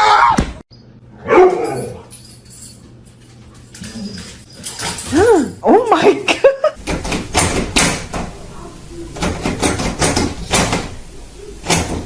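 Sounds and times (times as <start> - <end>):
sharp knocks and clattering bangs: 6.8 - 8.4, 9.2 - 12.0.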